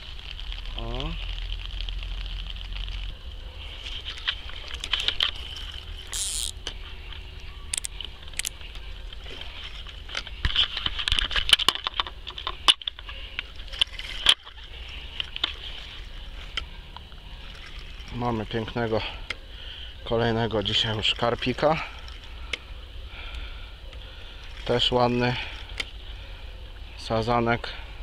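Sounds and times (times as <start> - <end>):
rain pattering on an umbrella: 0.0 - 6.1
fishing tackle clicking: 4.8 - 6.7, 7.7 - 8.6.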